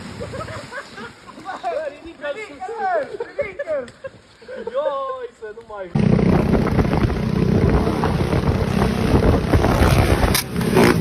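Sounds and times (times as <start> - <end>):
vehicle running: 6.0 - 11.0
wind buffeting microphone: 6.0 - 11.0.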